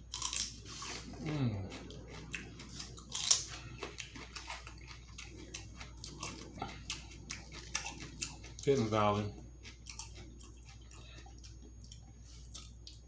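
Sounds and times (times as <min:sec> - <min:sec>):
bite crunch: 0:00.0 - 0:08.9
chewing with mouth clicks: 0:00.1 - 0:13.0.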